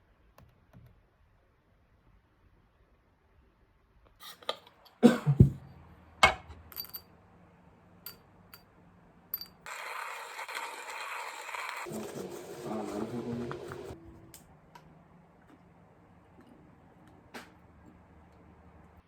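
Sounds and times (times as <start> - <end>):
hard objects clinking and knocking: 6.2 - 7.1, 9.3 - 11.9.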